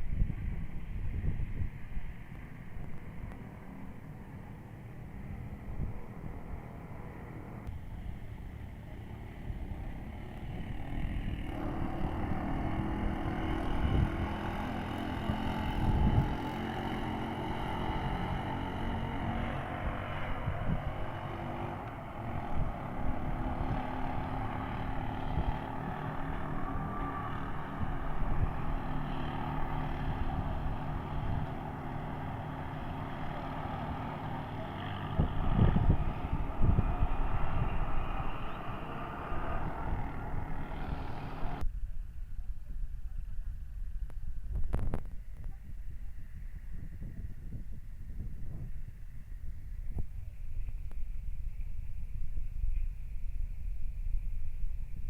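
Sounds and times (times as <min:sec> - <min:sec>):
road noise: 0:00.0 - 0:55.0
vehicle engine running: 0:00.9 - 0:41.6.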